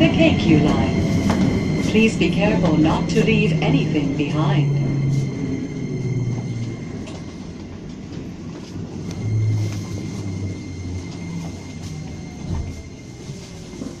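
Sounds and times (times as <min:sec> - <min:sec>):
train wheels and motors rumbling: 0:00.0 - 0:14.0.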